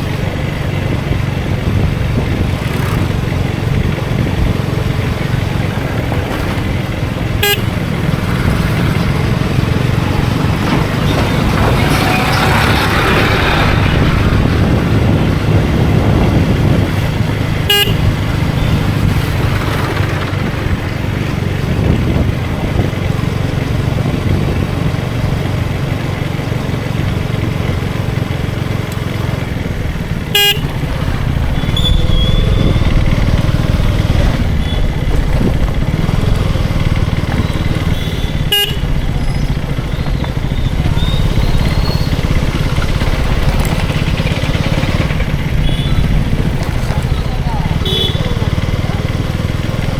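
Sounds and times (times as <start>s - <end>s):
motorcycle engine cruising: 0.0s - 49.9s
wind and road noise: 0.0s - 49.9s
faint car horn toots: 7.4s - 8.0s, 17.7s - 18.7s, 30.3s - 33.4s, 37.8s - 39.2s, 45.5s - 46.2s, 47.8s - 48.7s.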